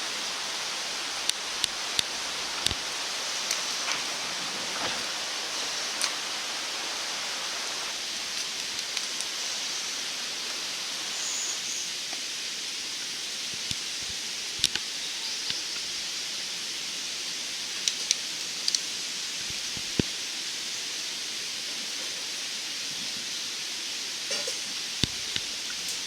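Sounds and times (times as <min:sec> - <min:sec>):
wood fire hissing: 0:00.0 - 0:26.0
twigs crackling: 0:00.9 - 0:06.3.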